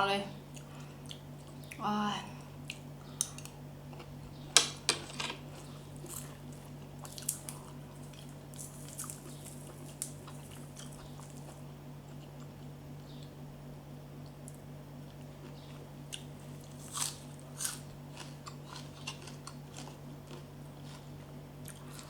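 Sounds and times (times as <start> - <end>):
wet chewing: 5.6 - 12.7
sharp food crunches: 5.9 - 11.6, 15.2 - 22.0.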